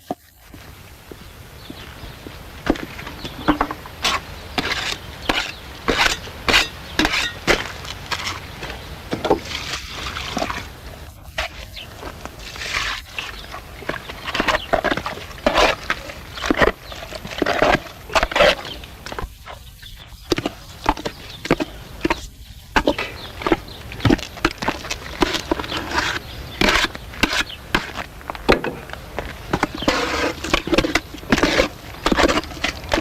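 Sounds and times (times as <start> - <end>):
knocks and thuds of tools: 28.5 - 28.9.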